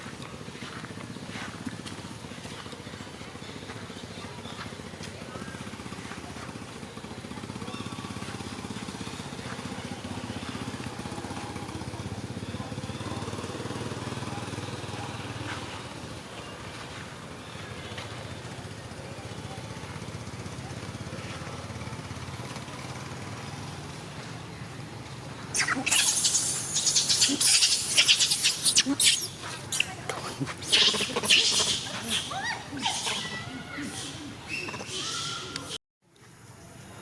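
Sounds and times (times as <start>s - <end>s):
small engine running: 0.0s - 35.7s.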